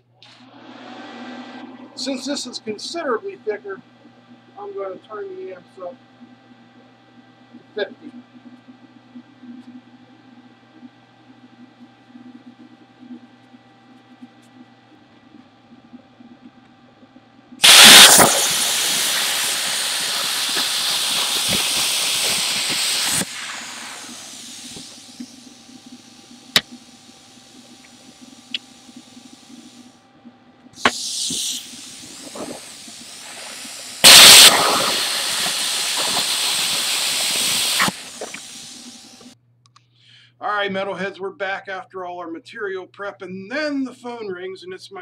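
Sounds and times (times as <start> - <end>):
rush of air: 17.6 - 26.3, 30.8 - 39.4
plasma arc striking crack: 17.6 - 26.8, 30.8 - 39.4
plasma cutter hissing: 17.6 - 30.0, 30.8 - 39.4.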